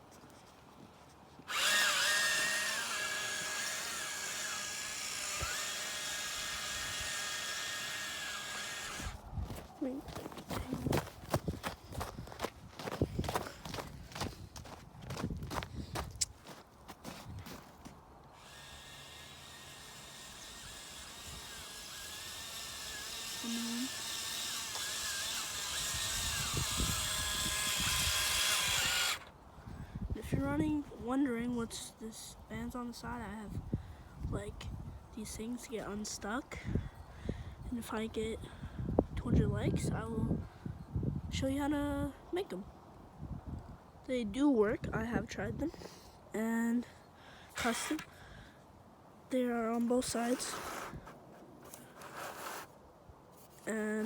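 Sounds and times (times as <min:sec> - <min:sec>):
toy truck electric motor whining: 0:01.5 - 0:09.6, 0:18.4 - 0:29.3, 0:47.5 - 0:48.2, 0:49.9 - 0:52.7.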